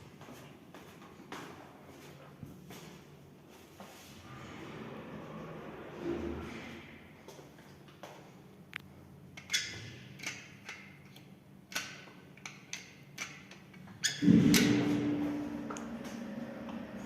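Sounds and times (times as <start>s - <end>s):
lift steady low hum: 14.2s - 17.0s.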